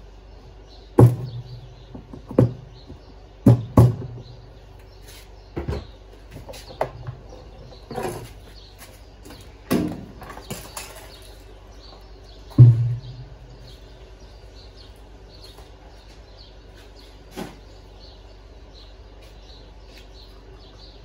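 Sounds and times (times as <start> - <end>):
knocks and thumps with low ring: 1.0 - 4.4, 12.5 - 13.7.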